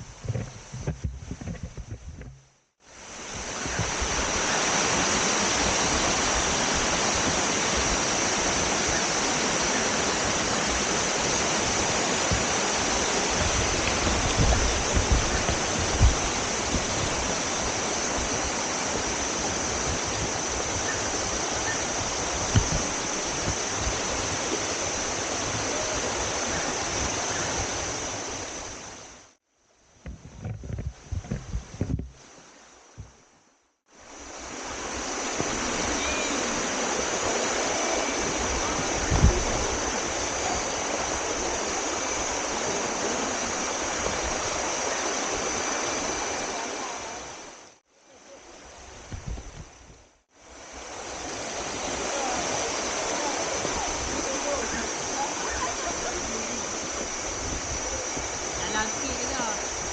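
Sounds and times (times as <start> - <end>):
low bumps: 0.0 - 2.7
waterfall rushing: 2.9 - 29.2, 34.0 - 49.0, 50.4 - 59.9.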